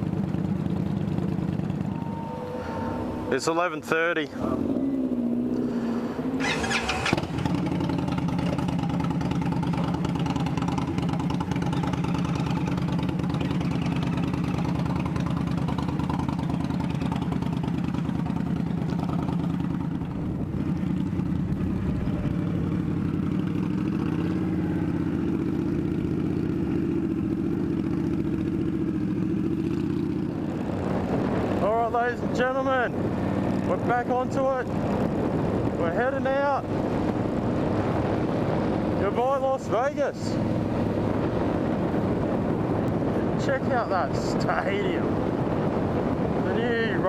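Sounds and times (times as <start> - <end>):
motorcycle engine idling: 0.0 - 3.8, 4.4 - 30.6.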